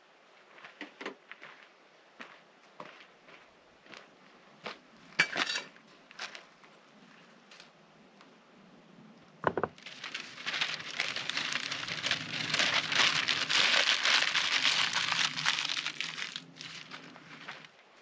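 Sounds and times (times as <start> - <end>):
knock: 9.4 - 9.8
packaging crinkling and rustling: 9.8 - 17.7.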